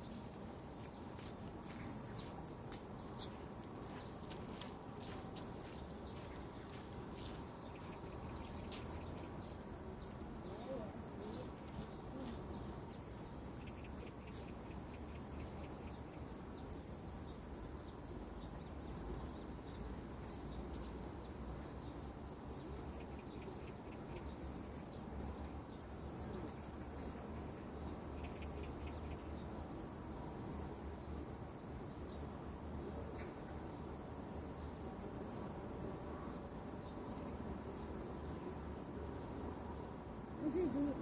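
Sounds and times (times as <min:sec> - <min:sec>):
birds chirping: 0:00.0 - 0:29.5, 0:40.3 - 0:41.0.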